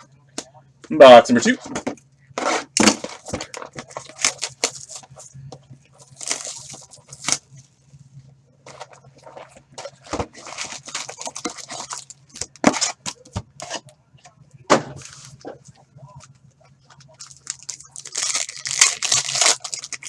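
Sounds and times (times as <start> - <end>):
wrappers ripping and crinkling: 2.4 - 5.3, 6.0 - 7.6, 8.7 - 13.9, 16.2 - 20.0.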